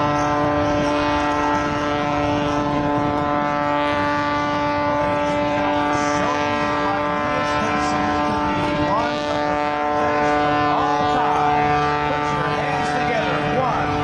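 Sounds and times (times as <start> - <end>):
propeller plane engine running: 0.0 - 14.0.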